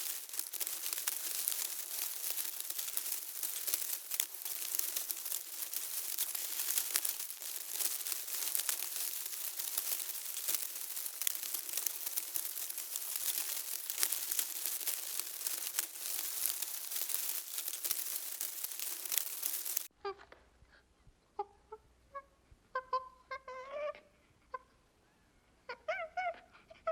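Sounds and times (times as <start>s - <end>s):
dense crackling with clicks: 0.0s - 19.9s.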